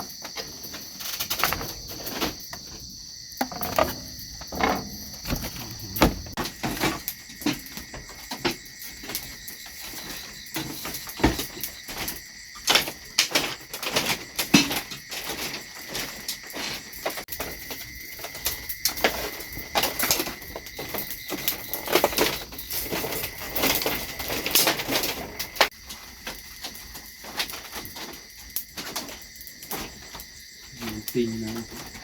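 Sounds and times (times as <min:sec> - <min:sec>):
insects trilling: 0:00.0 - 0:32.0
objects being handled: 0:00.7 - 0:09.2.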